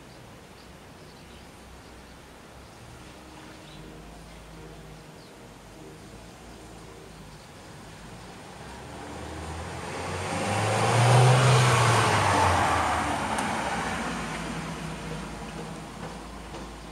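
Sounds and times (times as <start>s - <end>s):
vehicle engine and tyres passing: 6.5s - 16.9s.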